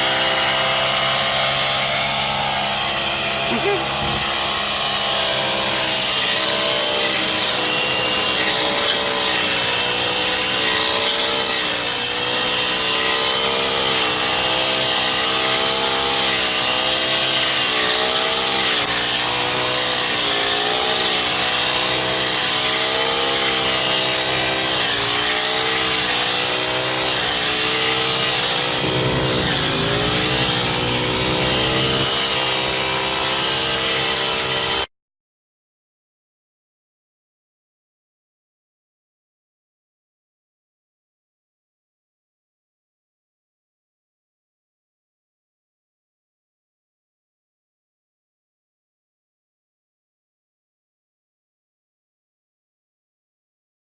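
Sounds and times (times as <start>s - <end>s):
brush cutter engine running: 0.0s - 34.9s.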